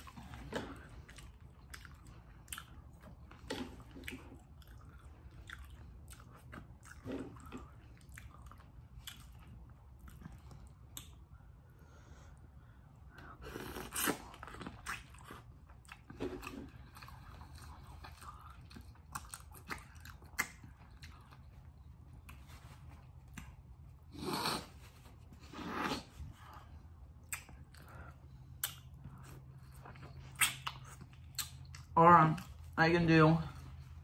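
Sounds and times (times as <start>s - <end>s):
chewing and smacking: 0.0s - 11.6s, 13.0s - 32.8s
wet mouth clicks: 27.2s - 27.9s, 28.5s - 29.2s, 30.2s - 31.9s.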